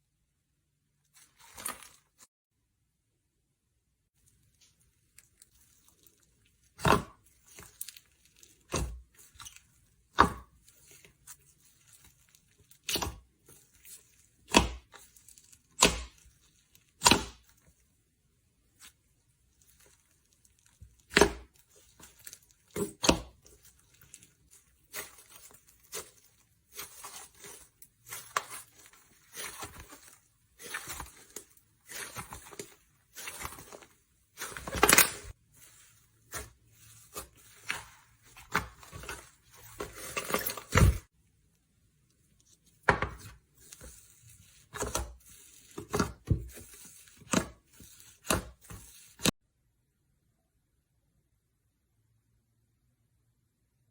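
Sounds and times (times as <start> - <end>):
loud slime squelch: 18.6 - 41.1, 42.5 - 49.3.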